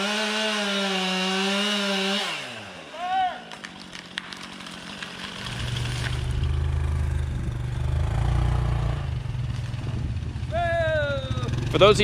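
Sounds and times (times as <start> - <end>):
low engine running: 5.3 - 12.0.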